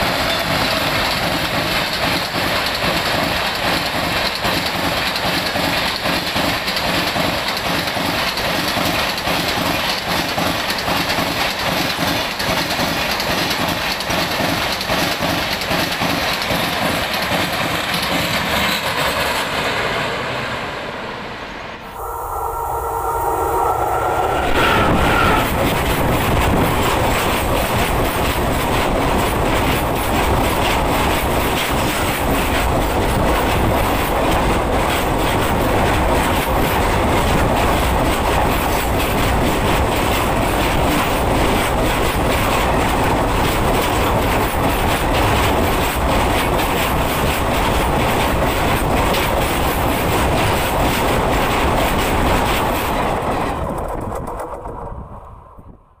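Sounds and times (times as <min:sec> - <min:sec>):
train wheels rumbling on rails: 0:00.0 - 0:56.0
rapid wheel clattering: 0:25.5 - 0:55.2.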